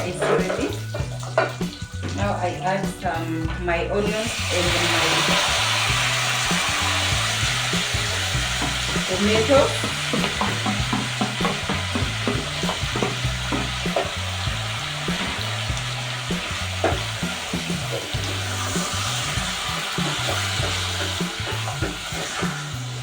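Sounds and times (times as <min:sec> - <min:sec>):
spoon scraping a pan: 0:00.0 - 0:02.0, 0:16.8 - 0:23.0
food sizzling in a frying pan: 0:00.0 - 0:02.2, 0:04.1 - 0:23.0
background music bass line: 0:00.0 - 0:23.0.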